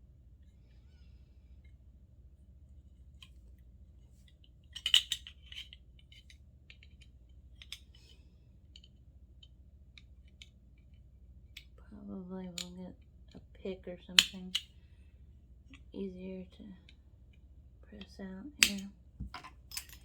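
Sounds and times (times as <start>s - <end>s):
metal parts clinking: 4.6s - 7.9s, 18.6s - 20.0s.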